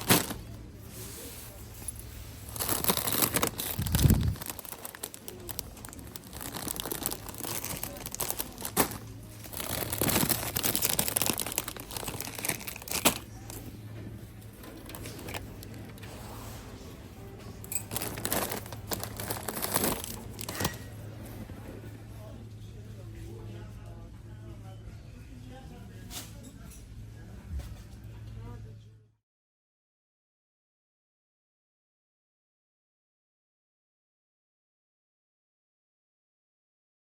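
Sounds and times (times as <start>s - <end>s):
plastic wrappers rustling: 0.0s - 13.7s, 14.5s - 16.0s, 17.4s - 21.0s.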